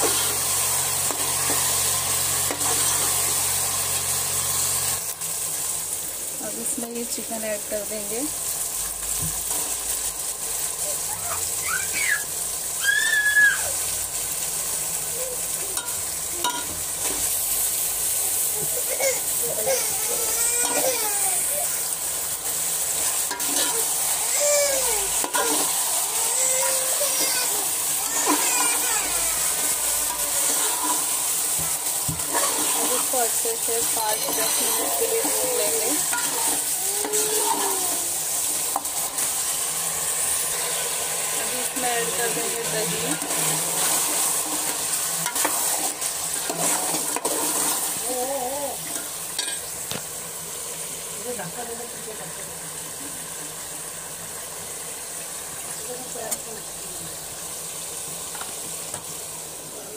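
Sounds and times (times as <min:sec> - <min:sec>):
chicken sizzling in hot oil: 0:00.0 - 0:59.9
metal spoon scraping a pot: 0:23.3 - 0:23.9, 0:28.1 - 0:28.8, 0:32.2 - 0:33.2, 0:33.9 - 0:36.7.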